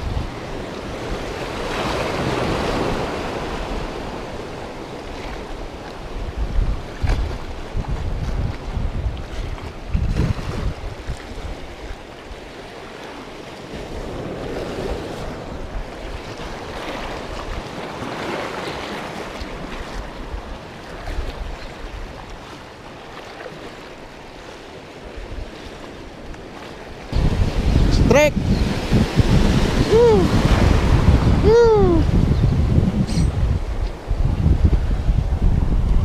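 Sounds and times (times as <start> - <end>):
wind buffeting microphone: 0.0 - 12.5, 27.1 - 36.0
sea waves: 0.0 - 36.0.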